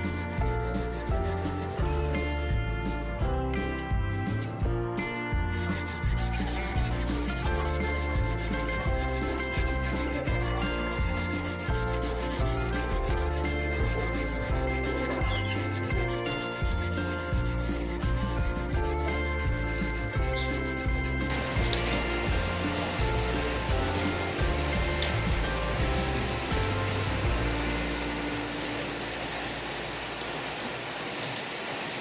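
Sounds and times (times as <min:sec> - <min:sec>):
sanding steel chisel: 0:00.0 - 0:02.8, 0:05.5 - 0:25.7
background music: 0:00.0 - 0:29.1.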